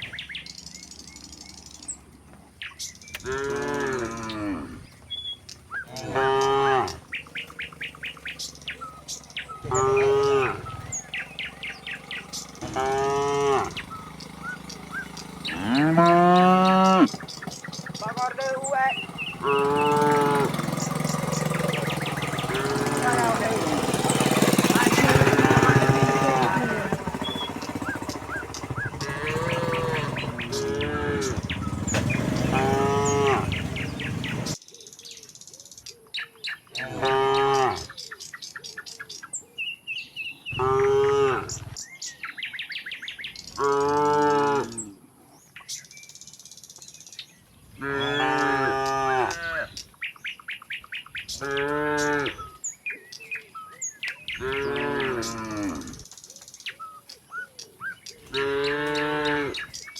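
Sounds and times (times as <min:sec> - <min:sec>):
birds chirping: 0:00.0 - 0:59.9
rough low rumbling: 0:03.0 - 0:34.6
cattle mooing: 0:03.2 - 0:04.9, 0:05.8 - 0:27.0, 0:28.8 - 0:34.6, 0:36.8 - 0:37.9, 0:40.5 - 0:41.8, 0:43.6 - 0:45.0, 0:47.8 - 0:49.8, 0:51.4 - 0:52.5, 0:54.4 - 0:56.0, 0:58.3 - 0:59.8.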